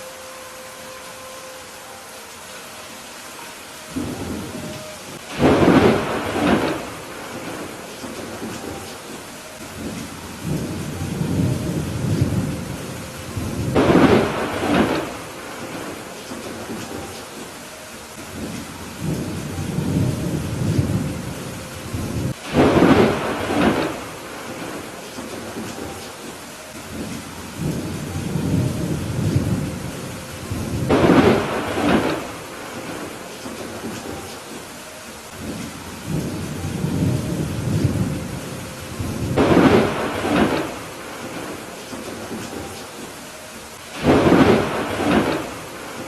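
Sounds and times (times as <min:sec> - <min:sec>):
steady rain: 0:00.0 - 0:46.0
thunder rumbling: 0:03.8 - 0:43.3, 0:43.9 - 0:46.0
sharp thunderclap: 0:05.2 - 0:08.8, 0:13.4 - 0:17.1, 0:21.9 - 0:25.9, 0:30.5 - 0:34.2, 0:35.4 - 0:42.8, 0:44.0 - 0:46.0.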